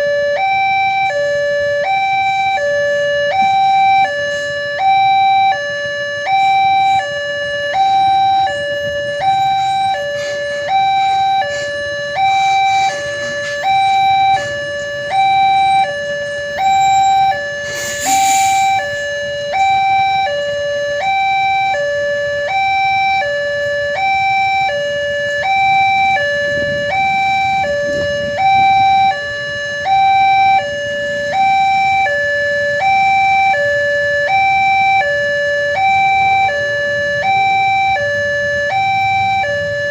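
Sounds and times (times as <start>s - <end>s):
level crossing two-tone alarm: 0.0s - 39.9s
brief hiss: 17.7s - 18.7s.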